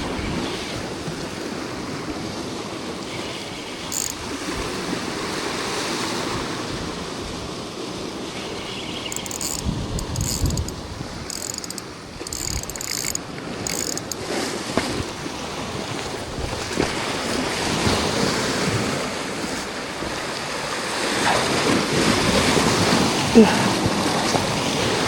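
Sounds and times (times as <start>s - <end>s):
waves on rocky shore: 14.2s - 25.0s.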